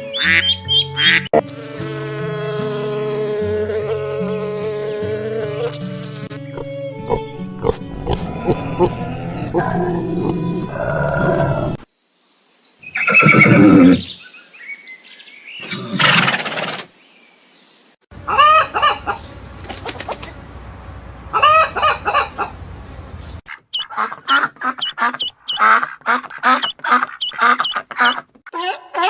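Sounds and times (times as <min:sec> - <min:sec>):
animal calls: 0:18.2 - 0:20.3, 0:21.3 - 0:22.6.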